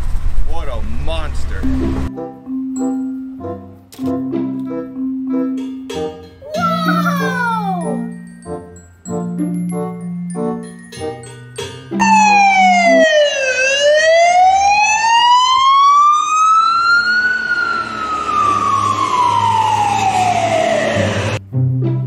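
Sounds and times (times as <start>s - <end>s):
siren wailing: 12.0s - 21.4s.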